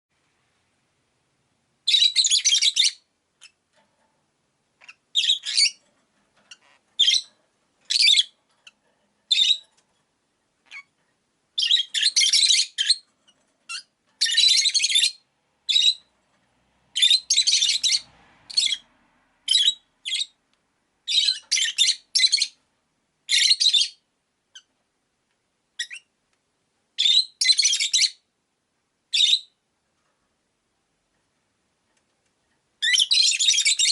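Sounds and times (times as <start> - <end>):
lovebirds chirping shrilly: 1.9 - 3.6, 4.8 - 5.8, 6.5 - 7.3, 11.6 - 13.0, 13.7 - 16.0, 17.0 - 18.8, 21.1 - 22.6, 32.8 - 33.9.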